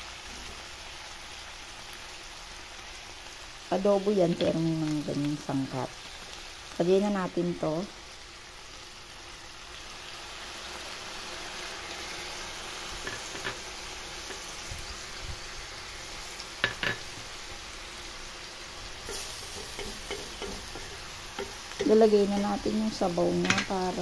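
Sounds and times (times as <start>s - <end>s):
food sizzling in a pot: 0.0s - 24.0s
wooden spatula knocking pot: 16.6s - 17.1s, 19.1s - 22.0s.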